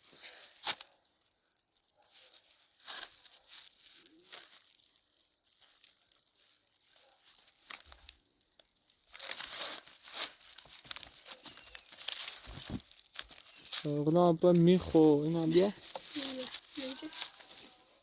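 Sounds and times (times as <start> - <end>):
plastic sheeting crinkling: 1.8 - 18.0.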